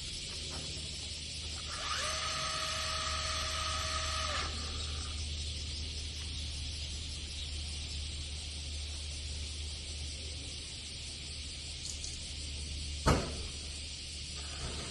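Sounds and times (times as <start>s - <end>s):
electric motor whining: 1.4s - 5.3s.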